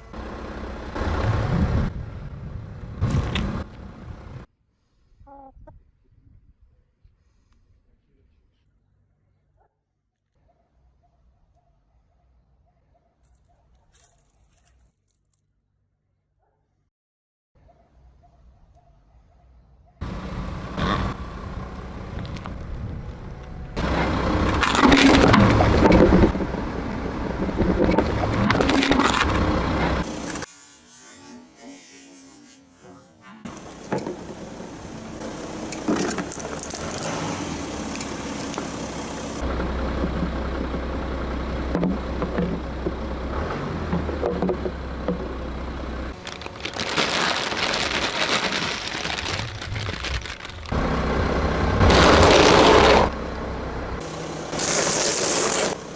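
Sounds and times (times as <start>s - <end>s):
car engine running low: 0.0s - 4.5s, 20.0s - 30.5s, 33.5s - 55.9s
tyres crushing objects: 23.8s - 26.4s, 46.2s - 50.8s.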